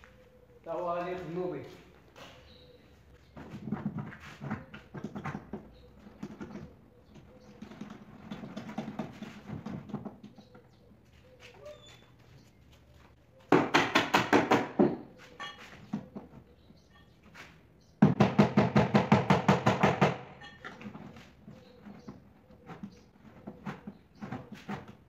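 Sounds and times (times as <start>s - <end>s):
sharp knocks on wood: 13.5s - 15.0s, 18.0s - 20.3s.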